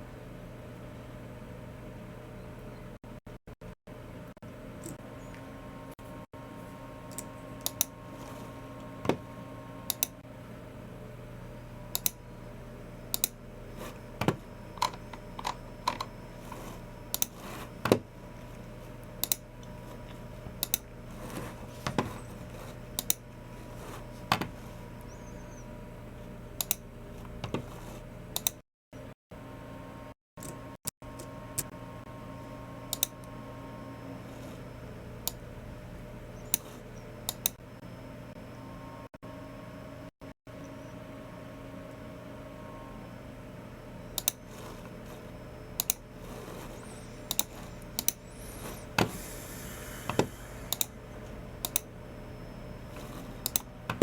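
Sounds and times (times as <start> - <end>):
steady low hum: 0.0 - 54.0
mouse clicks: 46.7 - 49.0.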